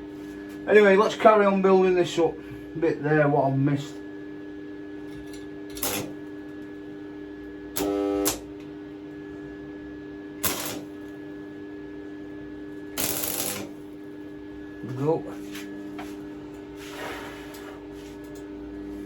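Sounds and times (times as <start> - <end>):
steady hum: 0.0 - 19.0
welding arc buzzing: 5.8 - 6.8, 7.7 - 8.7, 10.4 - 11.6, 12.6 - 14.4
welding arc crackling: 7.8 - 8.5, 10.4 - 11.2, 13.0 - 14.0.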